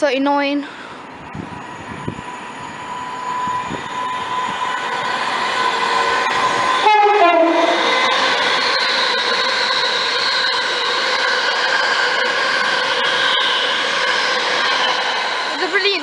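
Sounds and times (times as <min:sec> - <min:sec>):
train passing at speed: 0:00.0 - 0:16.0
two-tone train horn: 0:06.7 - 0:08.0.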